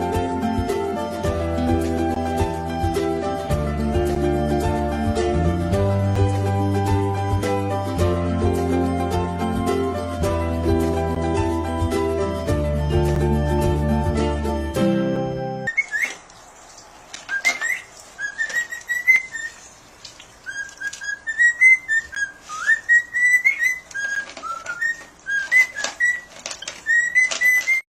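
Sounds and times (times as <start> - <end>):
background music: 0.0 - 15.7.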